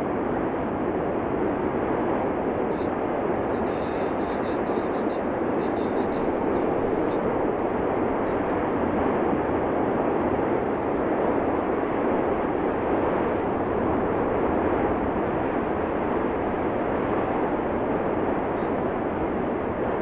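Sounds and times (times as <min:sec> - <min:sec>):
volcanic eruption roar: 0:05.2 - 0:20.0.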